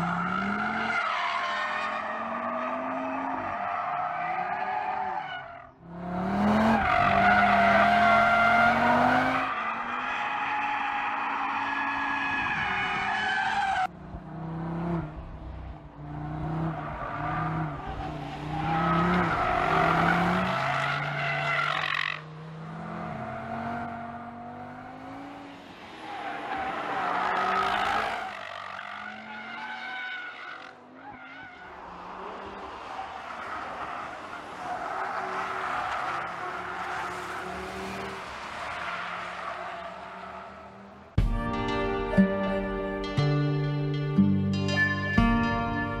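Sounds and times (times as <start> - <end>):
car engine revving hard: 5.9 - 9.5, 14.3 - 15.3, 16.0 - 17.8, 18.5 - 21.1.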